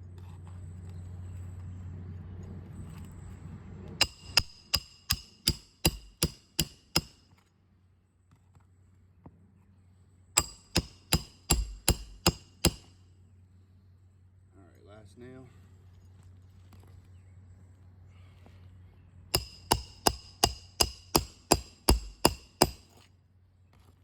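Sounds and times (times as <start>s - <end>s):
hammer driving nails: 4.0s - 7.2s, 10.4s - 12.9s, 19.4s - 23.0s.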